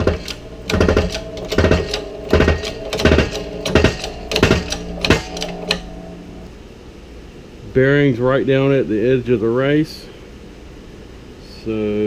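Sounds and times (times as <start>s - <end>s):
shop press metal clunks: 0.0s - 5.8s.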